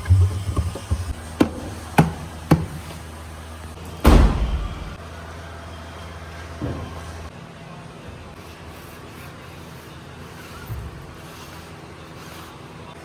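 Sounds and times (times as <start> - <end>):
sharp knocks: 0.0 - 3.0, 4.0 - 5.0
steady low hum: 0.0 - 5.0
heavy thud: 0.2 - 3.0, 4.0 - 5.0.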